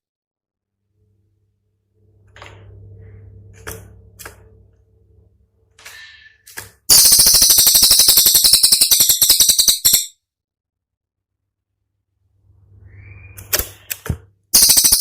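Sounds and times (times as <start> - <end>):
songbird rapid high notes: 6.9 - 10.1, 14.6 - 15.0.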